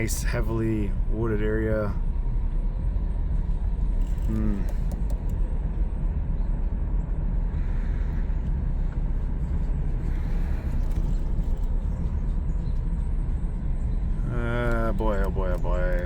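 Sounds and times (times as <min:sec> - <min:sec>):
car driving rumble: 0:00.0 - 0:16.0.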